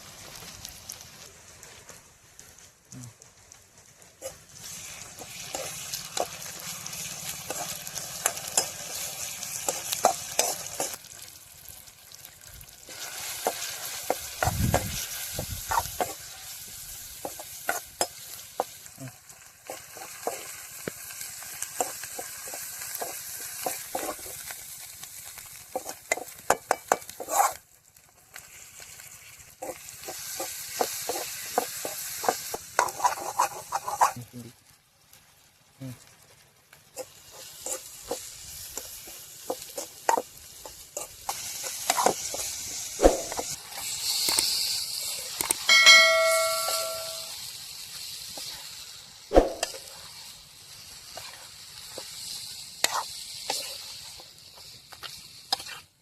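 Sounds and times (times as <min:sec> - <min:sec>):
food sizzling in oil: 0:00.0 - 0:56.0
spatula scraping pan: 0:04.2 - 0:11.0, 0:12.9 - 0:18.8, 0:19.6 - 0:24.5, 0:25.3 - 0:27.6, 0:29.6 - 0:34.2, 0:37.0 - 0:44.6, 0:51.0 - 0:56.0.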